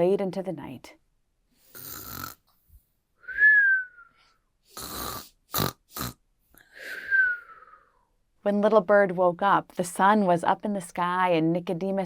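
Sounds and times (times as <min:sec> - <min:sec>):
cartoon snoring with whistle: 0:01.7 - 0:02.4, 0:04.7 - 0:06.2, 0:06.8 - 0:07.9.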